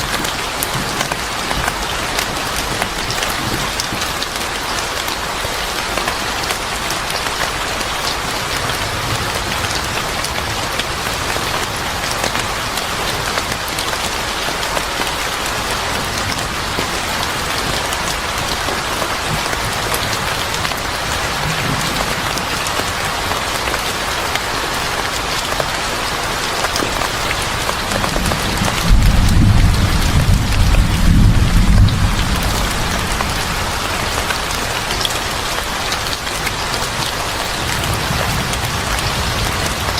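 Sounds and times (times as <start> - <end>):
heavy rain falling: 0.0 - 39.9
thunder rumble: 15.3 - 23.5, 27.7 - 34.8.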